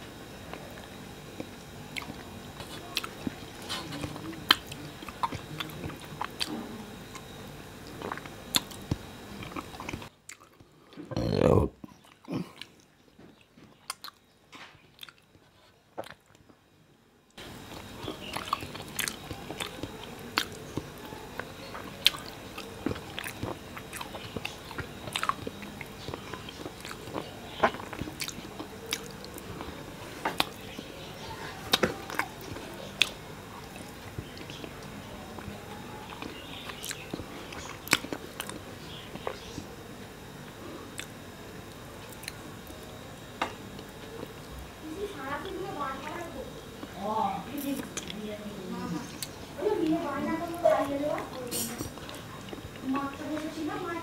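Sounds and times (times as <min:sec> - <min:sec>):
wet chewing with lip-smacks: 0:01.4 - 0:07.2, 0:07.8 - 0:10.7, 0:11.8 - 0:14.2, 0:14.9 - 0:16.4, 0:17.7 - 0:30.9, 0:36.1 - 0:39.7, 0:40.9 - 0:42.8
low mouth sound: 0:11.1 - 0:12.7.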